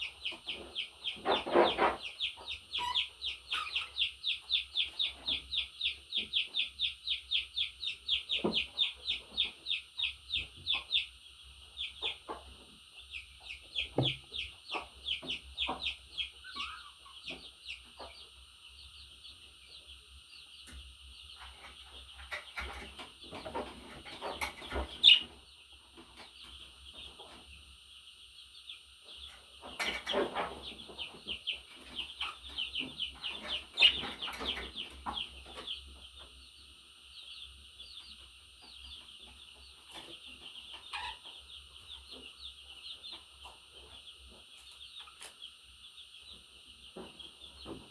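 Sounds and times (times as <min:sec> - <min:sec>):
light taps: 0:14.0 - 0:14.2
sharp knock: 0:14.0 - 0:14.3.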